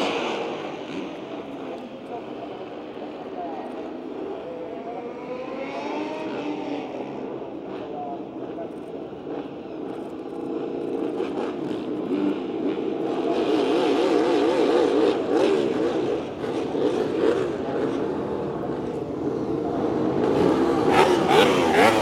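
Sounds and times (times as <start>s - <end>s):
motorcycle engine revving: 10.3s - 22.0s.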